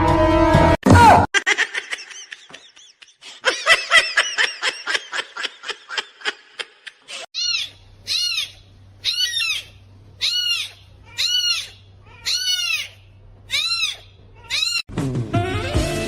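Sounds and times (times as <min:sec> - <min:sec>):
small animal crying: 0:07.4 - 0:14.9.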